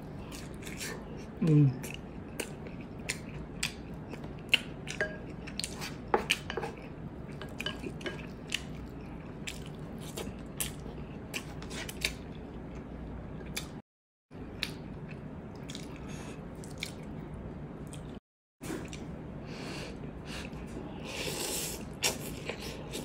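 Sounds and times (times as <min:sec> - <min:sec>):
chewing with wet mouth smacks: 0:00.2 - 0:13.8, 0:14.5 - 0:18.2.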